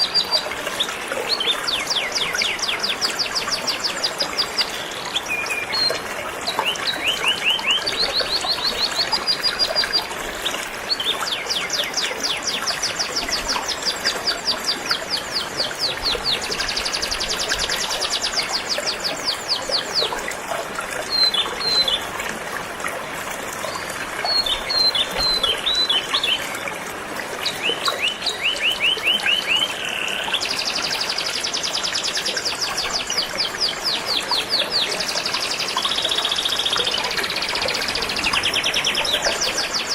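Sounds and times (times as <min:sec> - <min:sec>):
river water rushing: 0:00.0 - 0:39.9
canary singing trills: 0:24.2 - 0:26.5.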